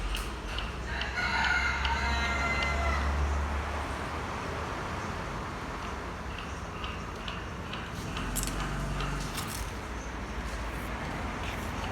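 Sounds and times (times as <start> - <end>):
rooster crowing: 0.8 - 3.4.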